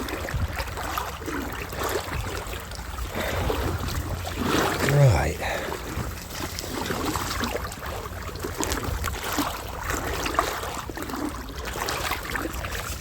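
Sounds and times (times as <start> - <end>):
water sloshing around legs: 0.0 - 13.0
steady low rumble: 2.8 - 8.5
small splashes and knocks: 5.8 - 13.0.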